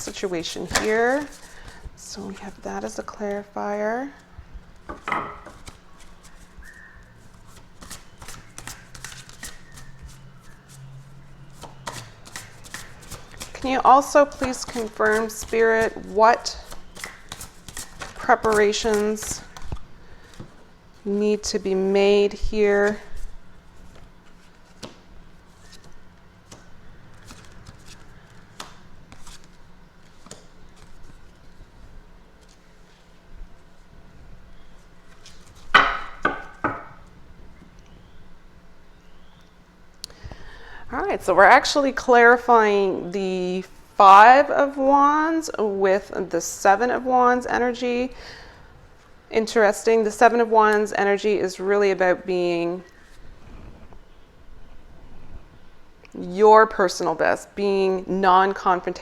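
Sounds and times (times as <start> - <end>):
low steady hum: 0.0 - 59.0
cards being shuffled: 0.4 - 2.6, 5.4 - 6.7, 7.3 - 10.9, 11.5 - 20.6, 22.8 - 33.1, 35.0 - 36.7.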